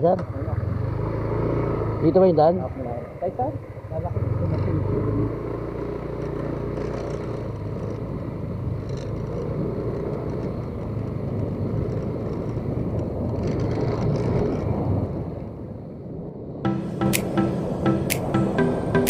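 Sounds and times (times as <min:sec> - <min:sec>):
motorcycle engine running: 0:00.0 - 0:14.5
road noise: 0:00.0 - 0:19.0.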